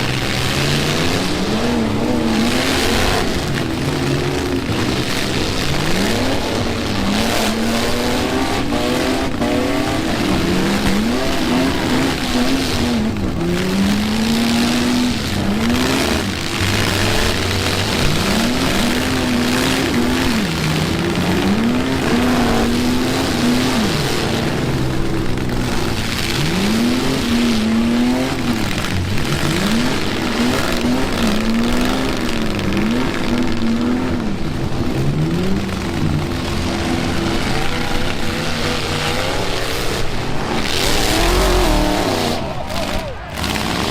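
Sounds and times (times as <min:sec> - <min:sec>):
truck engines revving hard: 0:00.0 - 0:43.9
tyre noise: 0:35.0 - 0:43.9.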